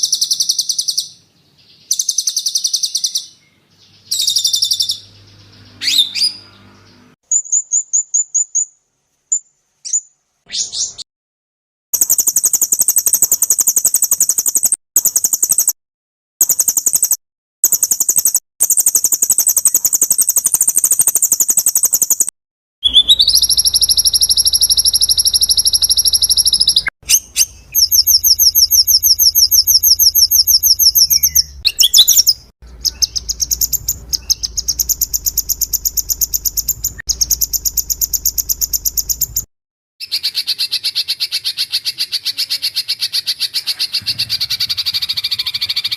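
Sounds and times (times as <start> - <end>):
songbird trills and chatter: 0.0 - 8.7, 18.9 - 39.4, 40.0 - 45.9
low hum: 32.6 - 39.4.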